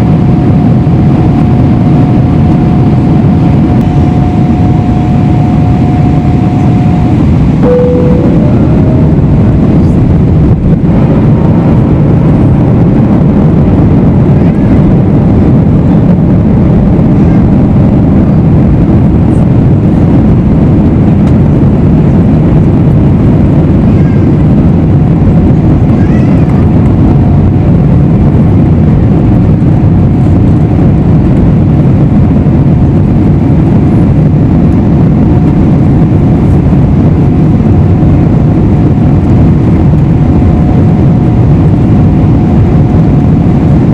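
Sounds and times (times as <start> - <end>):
faint steady hum: 0.0 - 25.8
air rushing over fuselage: 0.0 - 43.9
jet engines droning: 0.0 - 43.9.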